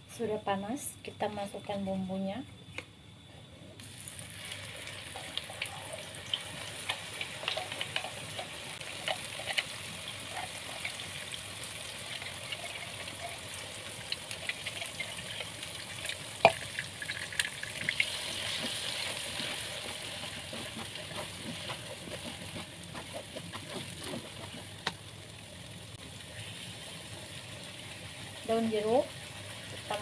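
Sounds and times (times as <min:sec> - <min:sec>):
spice paste sizzling in oil: 0:03.8 - 0:30.0
spatula scraping and tapping pan: 0:06.3 - 0:11.0, 0:17.8 - 0:25.0.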